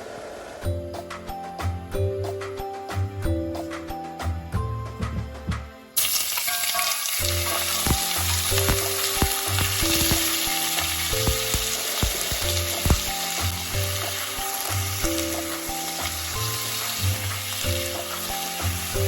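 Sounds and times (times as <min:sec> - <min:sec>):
food sizzling in hot oil: 0:06.0 - 0:19.0.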